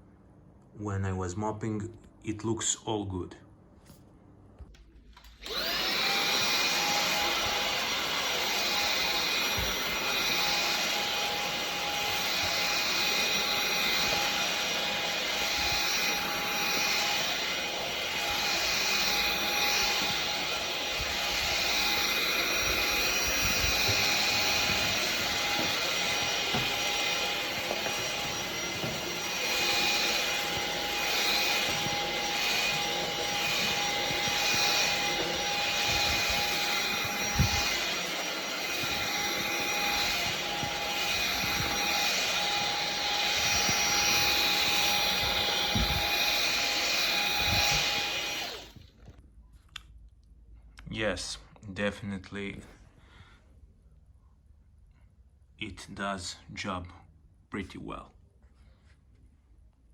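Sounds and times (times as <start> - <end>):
stick vacuum whining: 5.1 - 49.0.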